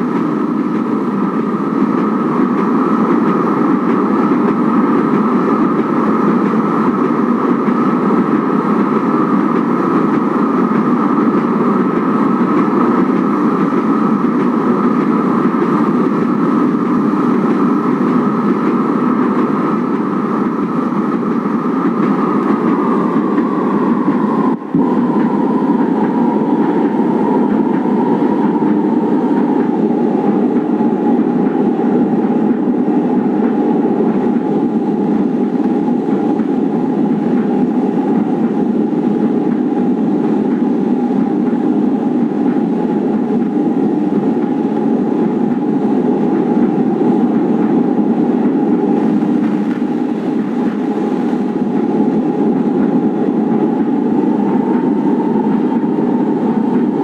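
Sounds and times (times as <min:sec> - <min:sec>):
running gear whine: 0:00.0 - 0:30.6, 0:48.7 - 0:52.5
light rail train rumbling: 0:00.0 - 0:57.0.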